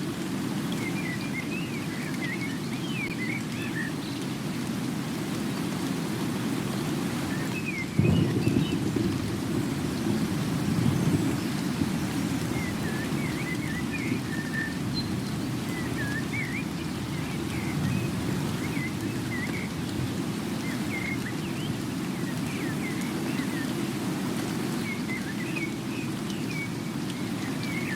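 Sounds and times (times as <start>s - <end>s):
small birds chirping: 7.2s - 24.0s, 24.6s - 27.9s.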